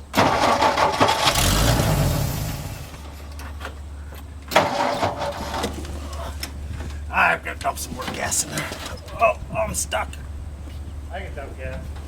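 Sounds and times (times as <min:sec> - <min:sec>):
starter motor cranking: 0:00.0 - 0:03.4, 0:04.4 - 0:07.1
engine running with low rumble: 0:00.0 - 0:12.0.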